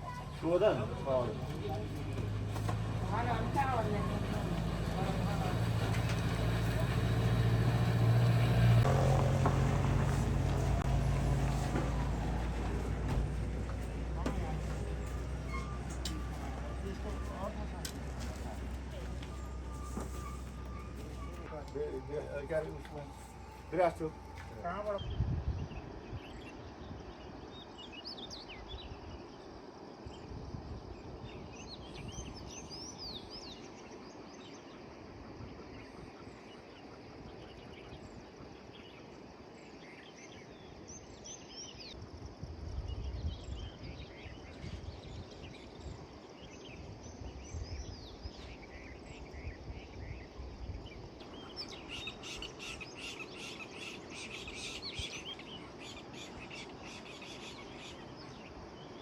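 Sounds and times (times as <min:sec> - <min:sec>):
low rumbles: 0:00.0 - 0:26.3
birds chirping: 0:00.0 - 0:30.2, 0:43.4 - 0:59.0.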